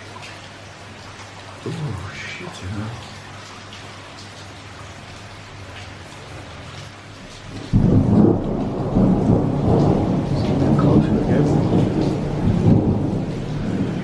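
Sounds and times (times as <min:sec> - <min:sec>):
rain falling: 0:00.0 - 0:14.0
thunderclap rolling rumble: 0:07.3 - 0:14.0.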